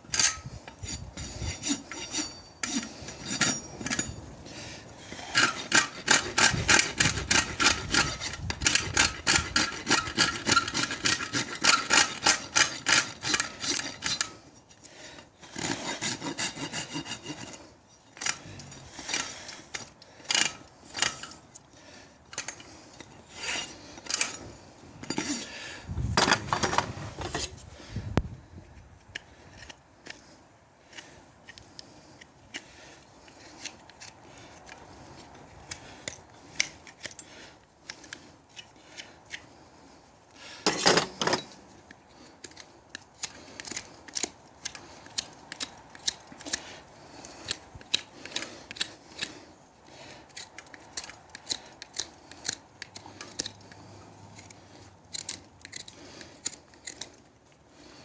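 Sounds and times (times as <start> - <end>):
rasp filing a hoof: 0.1 - 4.2, 5.0 - 14.5, 15.4 - 21.4, 22.4 - 25.6, 42.1 - 58.0.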